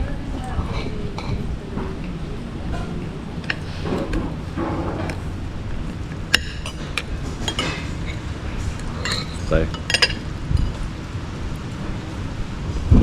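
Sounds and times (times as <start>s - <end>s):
steady low rumble: 0.0s - 13.0s
cutlery clinking on plates: 0.7s - 10.8s.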